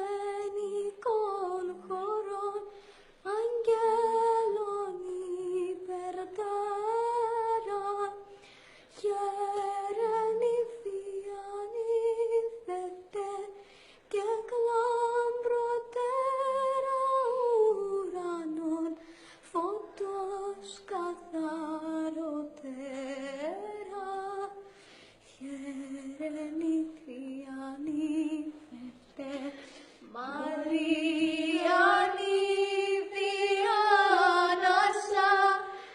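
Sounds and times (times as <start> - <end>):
woman singing a chant: 25.4 - 35.9.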